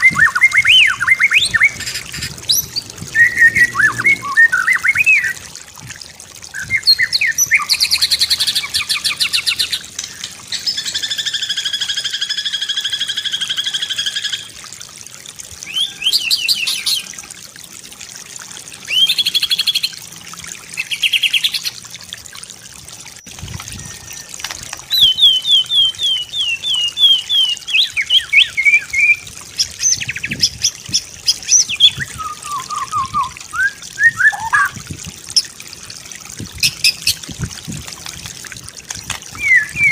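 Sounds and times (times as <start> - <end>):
songbird singing varied song: 0.0 - 5.4, 24.9 - 34.8, 39.3 - 39.9.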